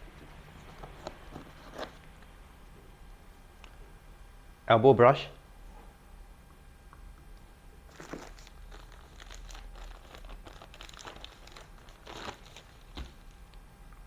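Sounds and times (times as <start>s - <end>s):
packaging crinkling and rustling: 0.0s - 2.1s, 7.9s - 13.5s.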